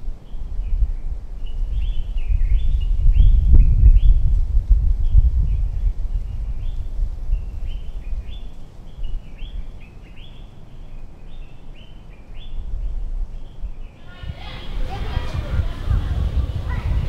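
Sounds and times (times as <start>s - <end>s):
birds chirping: 5.1s - 17.0s
low rumble: 14.2s - 17.0s.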